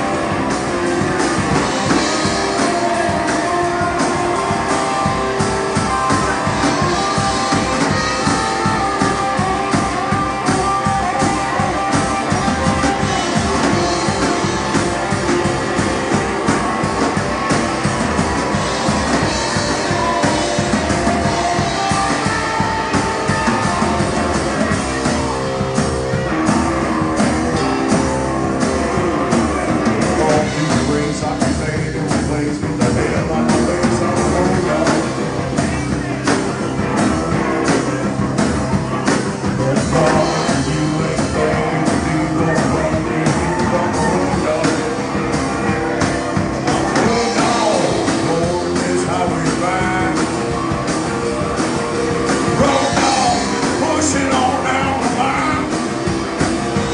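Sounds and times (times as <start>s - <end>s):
drums beating: 0.0s - 56.9s
guitar: 0.0s - 56.9s
rock band playing: 0.0s - 56.9s
person singing: 28.8s - 35.8s, 39.4s - 46.0s, 46.6s - 56.9s.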